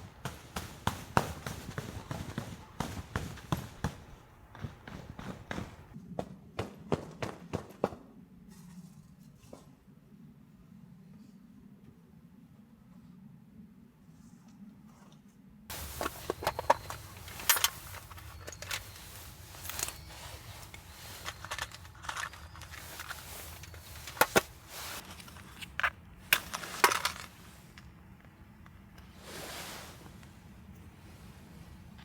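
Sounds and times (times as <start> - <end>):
crunching and sharp clicks: 15.7 - 29.0.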